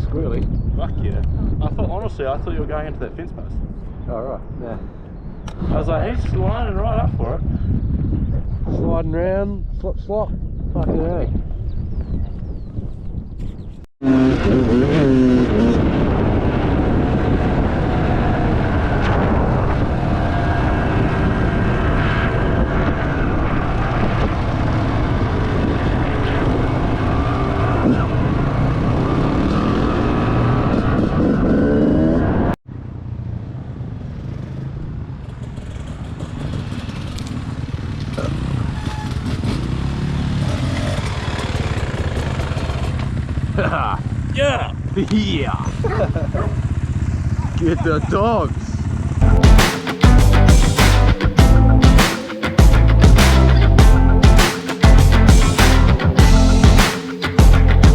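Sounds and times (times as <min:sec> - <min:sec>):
dirt bike engines revving: 0:14.0 - 0:32.6, 0:34.1 - 0:57.9.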